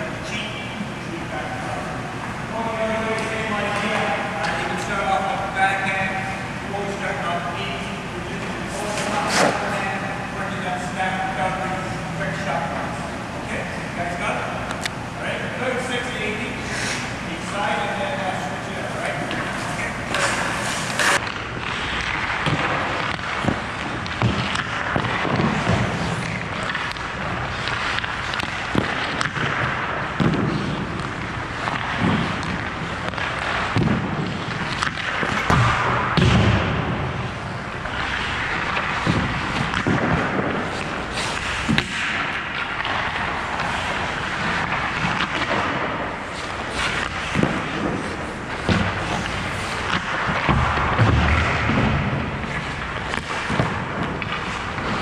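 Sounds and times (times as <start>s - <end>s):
pucks thudding on pads: 16.8s - 55.0s.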